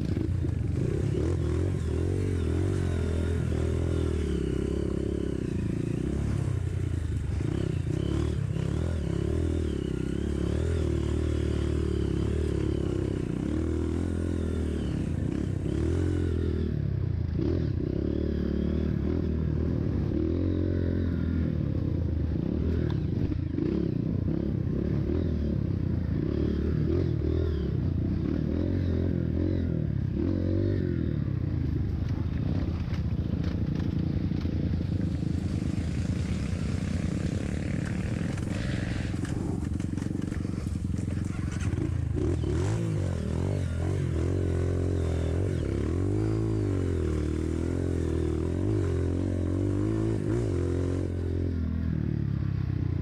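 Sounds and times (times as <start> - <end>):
motorcycle engine revving: 0.0 - 53.0
rattling from rough ground: 31.9 - 42.8.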